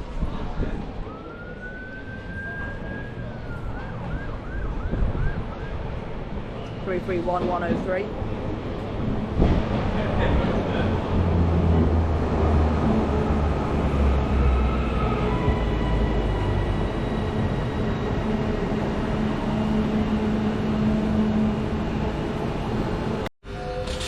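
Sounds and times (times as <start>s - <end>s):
electric train rumble: 5.9s - 24.0s.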